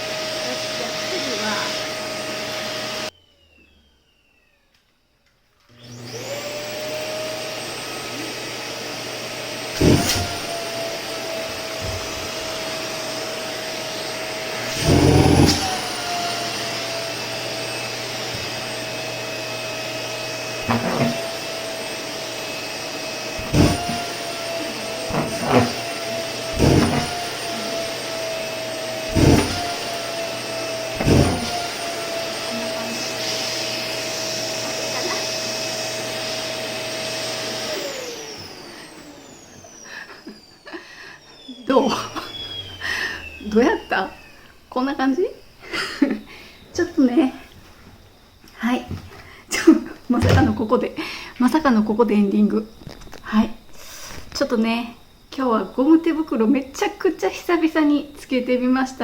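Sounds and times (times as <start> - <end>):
vacuum cleaner whining: 0.0 - 59.0
vacuum nozzle knocks: 9.8 - 10.5, 20.6 - 21.4, 23.3 - 24.2, 25.0 - 27.9, 29.0 - 30.1, 30.9 - 31.8.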